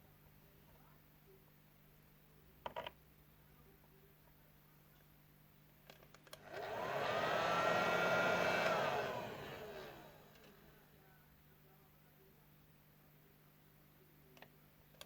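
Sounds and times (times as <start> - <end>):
small electric blower motor whirring: 6.4 - 10.8.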